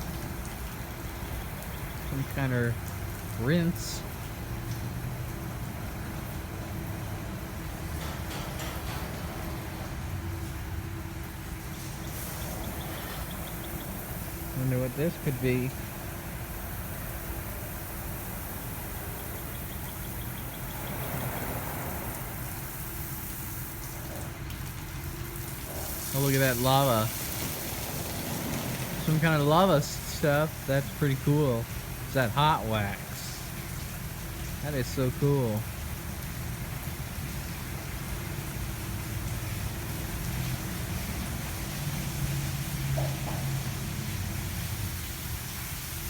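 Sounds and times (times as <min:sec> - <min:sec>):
car wash machinery rumble: 0:00.0 - 0:46.0
water spray hiss: 0:25.4 - 0:35.6.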